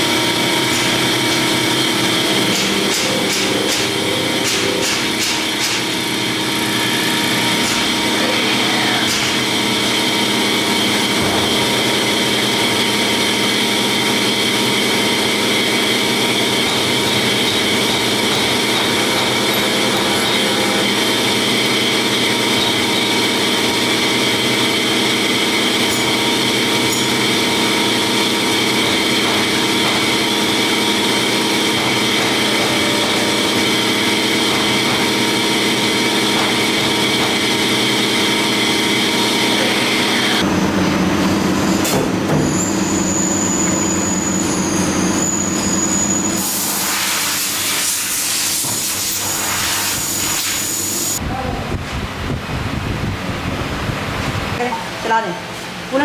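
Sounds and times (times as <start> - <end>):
factory machinery drone: 0.0 - 56.0.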